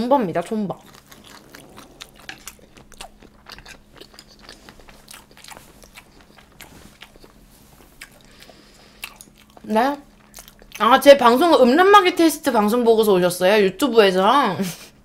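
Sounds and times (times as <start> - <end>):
faint steady hum: 0.0 - 15.0
person chewing with mouth clicks: 0.7 - 10.9.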